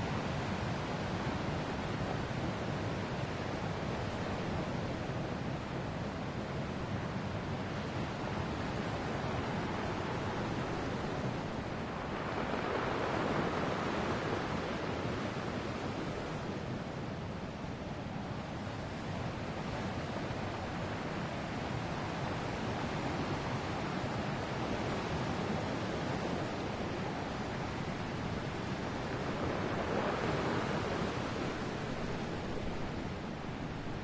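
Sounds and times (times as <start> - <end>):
ocean waves breaking: 8.6 - 17.0, 18.4 - 34.0.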